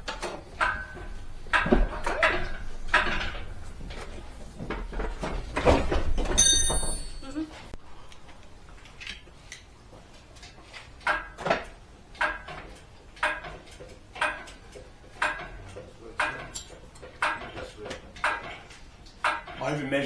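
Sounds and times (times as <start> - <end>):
metallic clack of hand pump: 0.1 - 4.1, 10.4 - 20.0.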